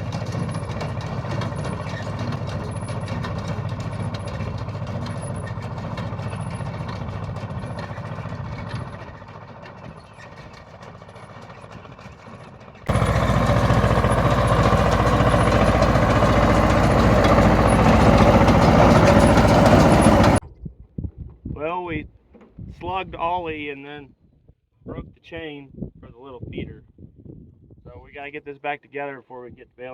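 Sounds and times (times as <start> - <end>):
machinery noise: 0.0 - 9.4, 12.9 - 20.4
tractor engine running: 0.0 - 20.4.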